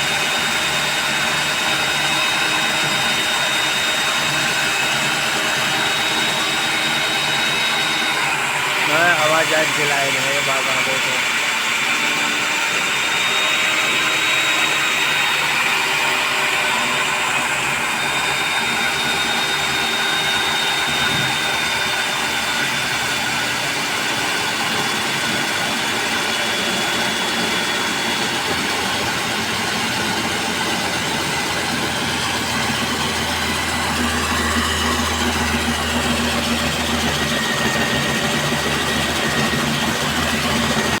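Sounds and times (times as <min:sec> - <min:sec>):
core cutting machine motor: 0:00.0 - 0:41.0
thin high whine: 0:05.7 - 0:11.5.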